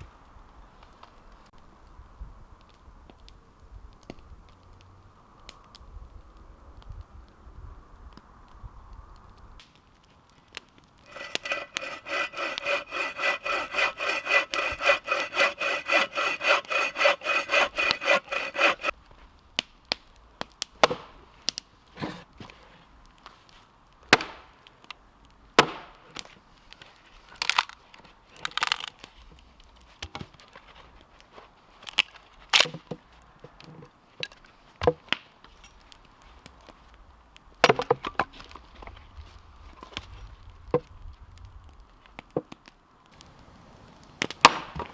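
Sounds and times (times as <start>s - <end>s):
hand saw cutting wood: 11.1s - 18.9s
sharp knocks and cracks of wood: 27.4s - 29.4s, 37.6s - 38.9s.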